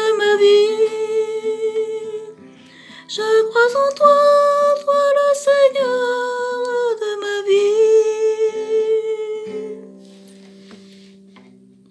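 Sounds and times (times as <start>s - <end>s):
woman singing a hymn: 0.0s - 9.9s
soft instrumental accompaniment: 7.9s - 11.9s.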